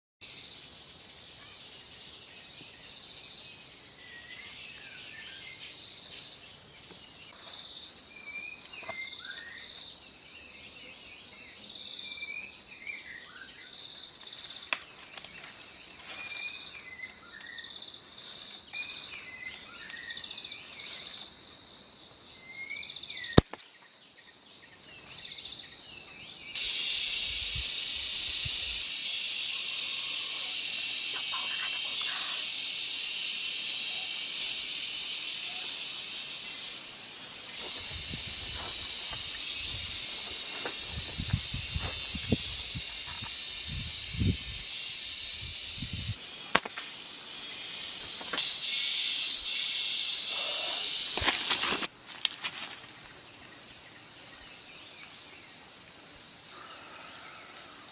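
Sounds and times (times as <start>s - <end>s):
insects trilling: 0.2s - 57.9s
birds chirping: 22.1s - 51.2s
loud steady hiss: 26.4s - 57.9s.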